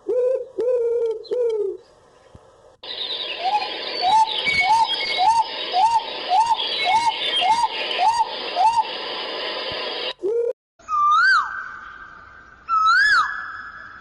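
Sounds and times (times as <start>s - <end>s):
background hiss: 0.0s - 10.5s
bird calling rising note: 2.8s - 9.1s.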